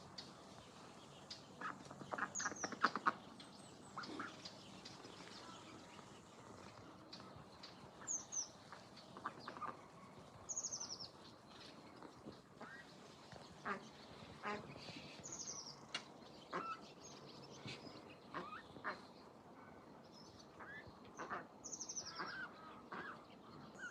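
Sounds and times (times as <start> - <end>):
ducks quacking: 1.6 - 4.5, 8.0 - 10.0, 12.6 - 15.4, 16.5 - 16.9, 17.7 - 19.2, 20.5 - 23.2.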